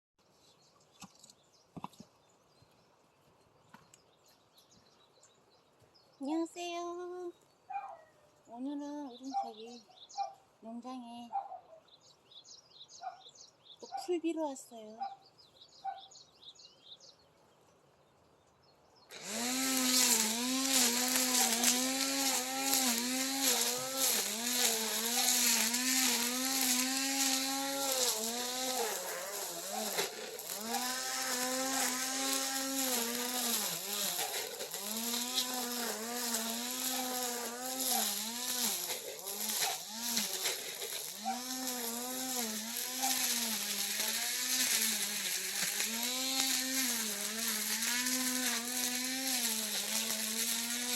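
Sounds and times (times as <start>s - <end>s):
brush cutter engine revving: 19.1s - 50.9s.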